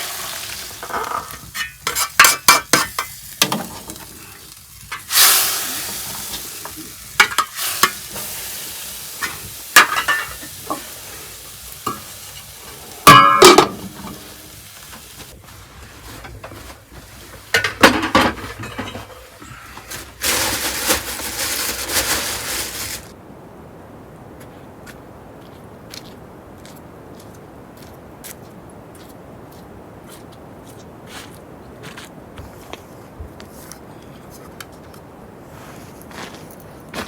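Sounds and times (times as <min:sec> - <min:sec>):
utensil scraping metal pan: 0:00.0 - 0:04.2, 0:04.9 - 0:23.1
food sizzling: 0:00.0 - 0:15.5, 0:20.1 - 0:23.2
steady hissing: 0:00.0 - 0:23.2.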